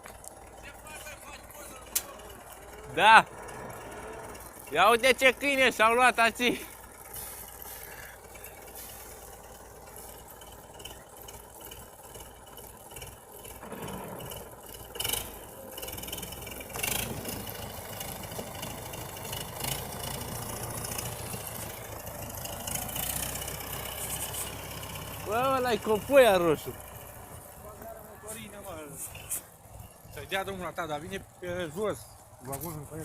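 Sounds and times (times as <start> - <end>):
tractor engine idling with rattling: 0.0 - 33.0.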